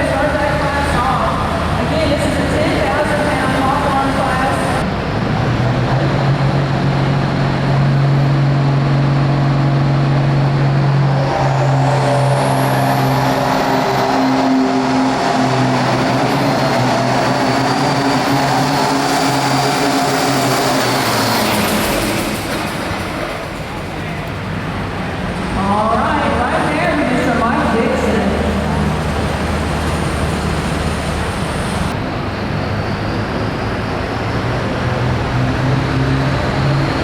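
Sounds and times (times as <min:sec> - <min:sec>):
tractor engine running hard: 0:00.0 - 0:37.0
high whine rising in pitch: 0:08.5 - 0:23.6.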